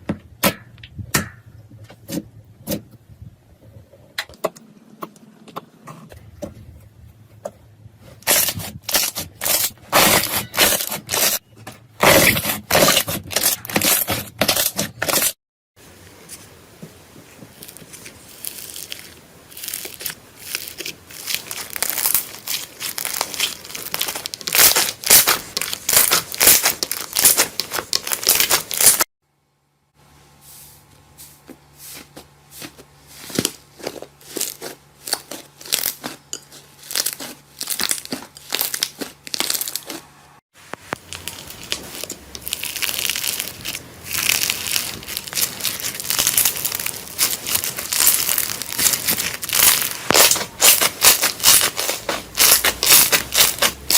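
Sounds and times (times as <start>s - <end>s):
slime squeezed crackling and popping: 17.6s - 29.0s, 33.8s - 40.0s, 40.9s - 53.9s.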